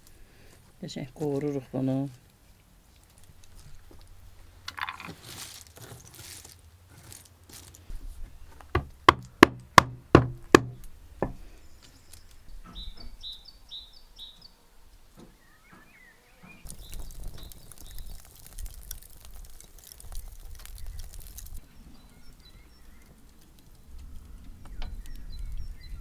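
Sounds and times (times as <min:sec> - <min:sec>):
sharp knocks: 0:08.7 - 0:11.4
bird chirping: 0:10.7 - 0:18.3, 0:20.8 - 0:26.0.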